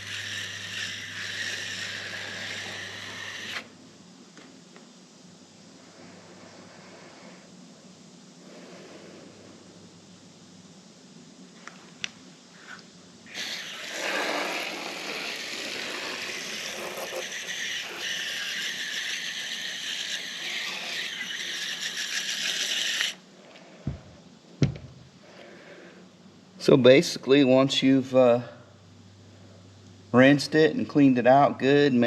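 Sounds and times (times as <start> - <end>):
spray bottle hissing: 13.3 - 23.2.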